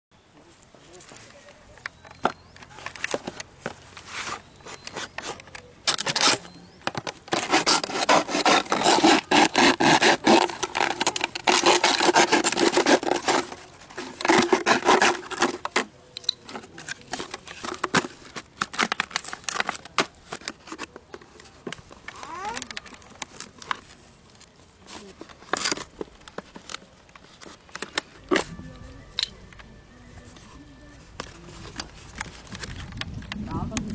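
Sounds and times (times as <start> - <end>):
rapid rough scraping: 2.8 - 20.9.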